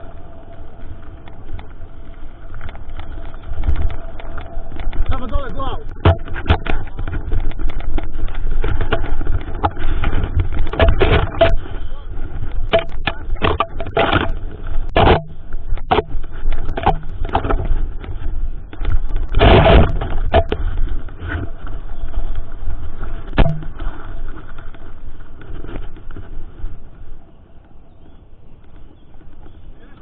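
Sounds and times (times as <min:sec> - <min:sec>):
bike tyre rumble on trail: 0:00.0 - 0:30.0
bike knocks and rattles: 0:02.5 - 0:11.7, 0:12.4 - 0:22.1, 0:22.9 - 0:27.0.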